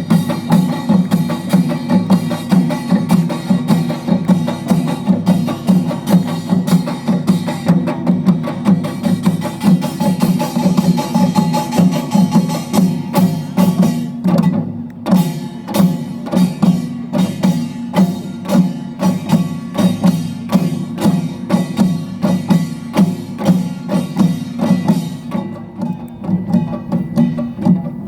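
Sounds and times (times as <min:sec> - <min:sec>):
drum strokes: 0:00.0 - 0:28.0
small gong clattering: 0:00.0 - 0:28.0.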